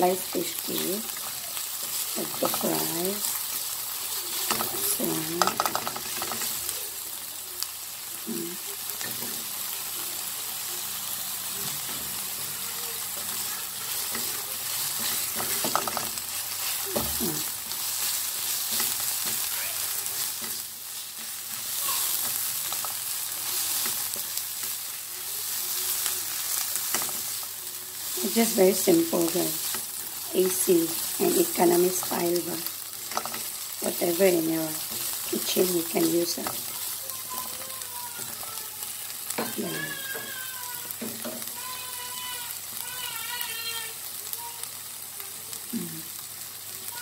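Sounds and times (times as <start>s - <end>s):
food sizzling in hot oil: 0.0s - 47.0s
spatula scraping a pan: 13.1s - 38.5s.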